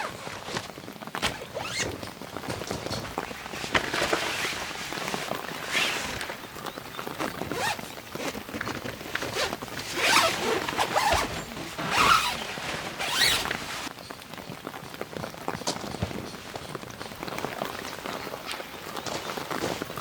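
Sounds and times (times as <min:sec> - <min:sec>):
zipper pulled: 0:00.0 - 0:13.9.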